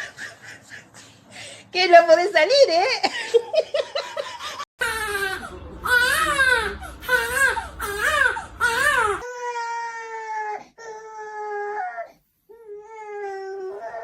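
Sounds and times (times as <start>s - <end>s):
animal wailing cries: 4.8s - 9.8s.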